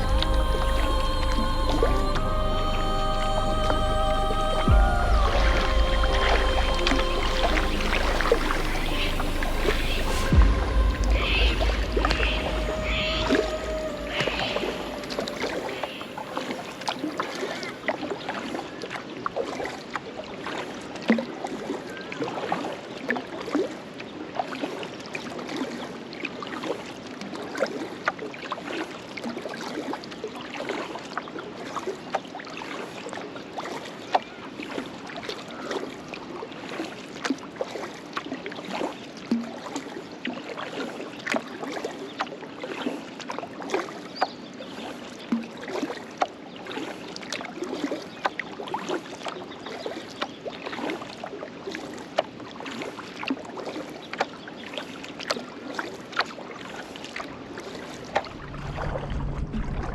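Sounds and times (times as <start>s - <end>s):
water splashing around a kayak: 0.0s - 59.9s.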